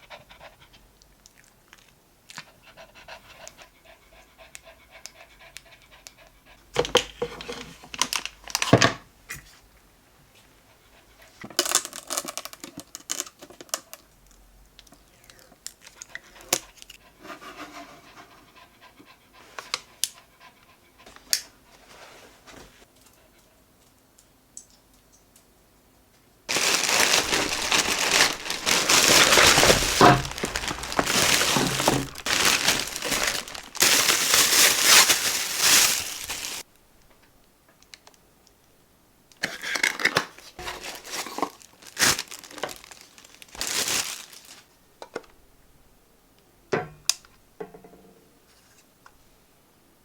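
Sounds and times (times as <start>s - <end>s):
crinkly material rustling: 26.5s - 36.7s, 40.6s - 44.7s.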